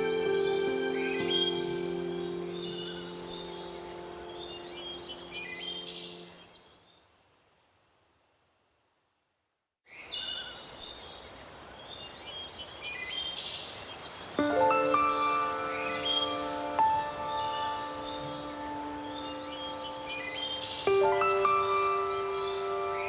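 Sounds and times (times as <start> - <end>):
held music chord: 0.0 - 6.4, 14.4 - 23.0
birds chirping and singing: 0.0 - 6.6, 14.4 - 23.0.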